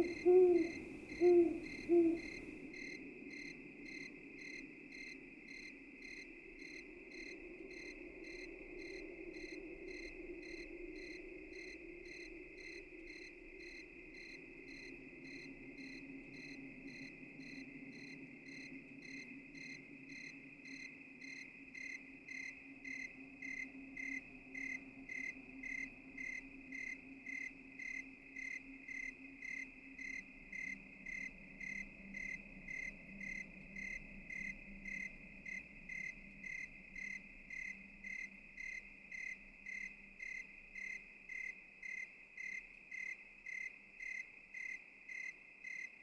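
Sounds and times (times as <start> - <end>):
low background hum: 0.0 - 2.5
crickets chirping: 0.0 - 46.0.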